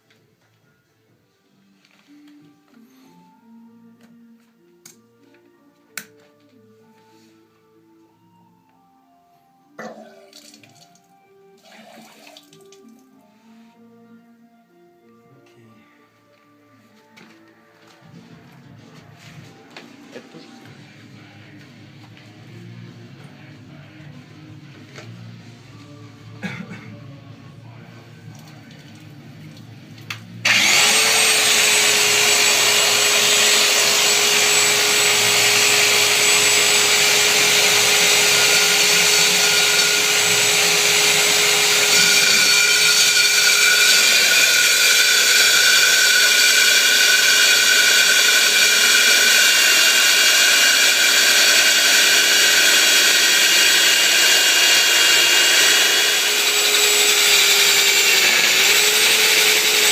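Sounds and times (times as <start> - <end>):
electric drill motor whirring: 30.4 - 59.9.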